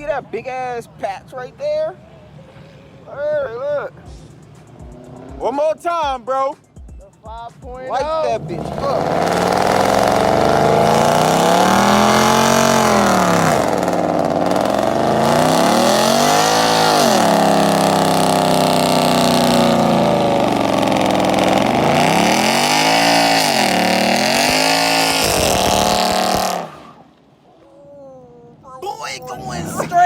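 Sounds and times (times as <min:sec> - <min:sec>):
engine revving hard: 0:08.3 - 0:27.0.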